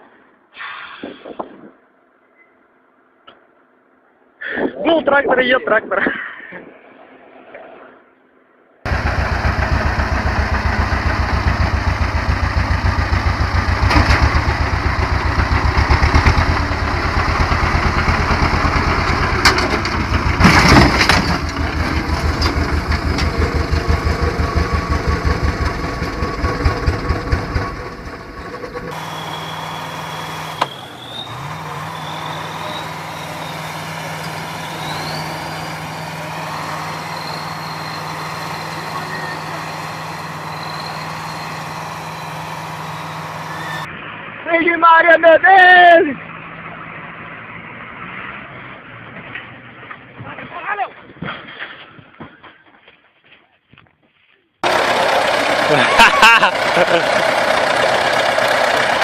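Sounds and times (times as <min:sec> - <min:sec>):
diesel engine chugging: 0:08.9 - 0:43.9, 0:54.6 - 0:59.0
engine hum with high whine: 0:08.9 - 0:44.5, 0:54.6 - 0:59.0.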